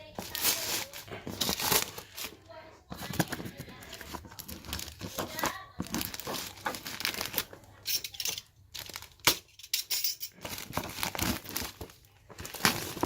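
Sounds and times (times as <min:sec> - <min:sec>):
packaging rustling: 0:00.0 - 0:09.4, 0:10.3 - 0:13.0.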